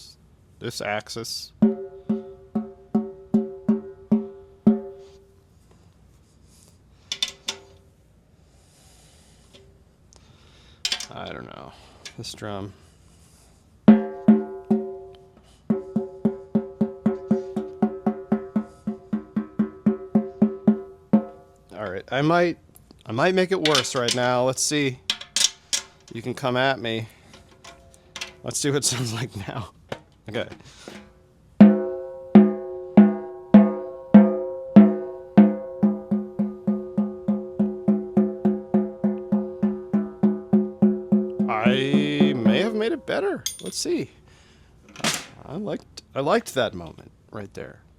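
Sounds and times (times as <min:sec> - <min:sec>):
snare drum strokes: 0:41.4 - 0:42.8.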